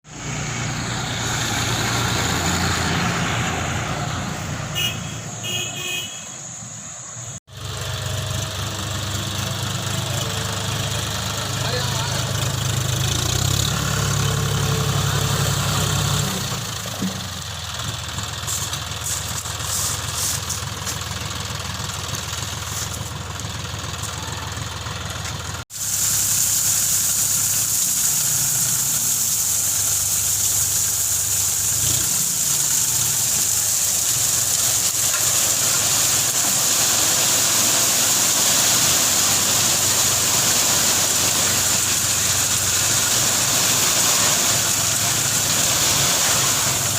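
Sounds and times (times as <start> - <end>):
tractor diesel engine running: 0.0 - 6.0, 7.1 - 46.9
strong hiss: 25.7 - 46.9.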